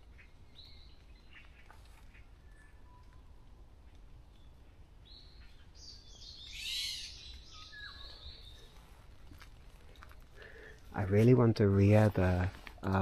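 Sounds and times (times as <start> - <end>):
bird harsh raspy call: 6.5 - 8.5.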